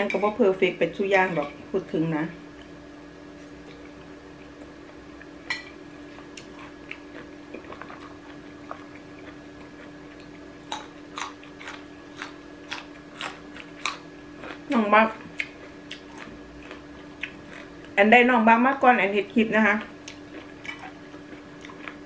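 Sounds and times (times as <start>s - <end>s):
crunching raw vegetable: 6.2s - 18.0s.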